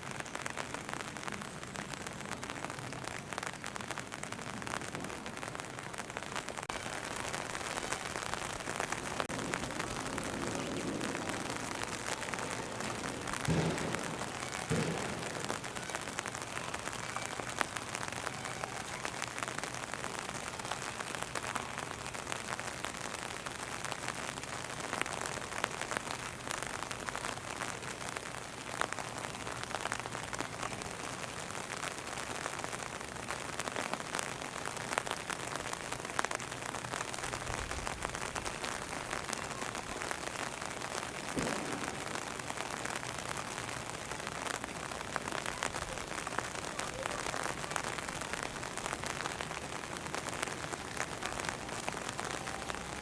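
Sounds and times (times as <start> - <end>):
rain pattering on umbrella: 0.0 - 53.0
low thump: 12.8 - 15.4.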